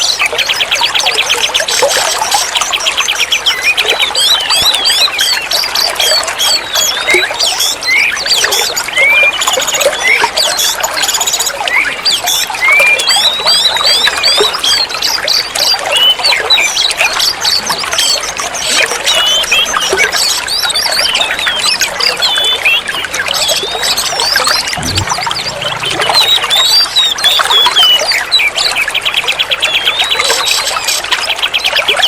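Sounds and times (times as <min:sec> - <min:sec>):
songbird singing: 0:19.0 - 0:30.8.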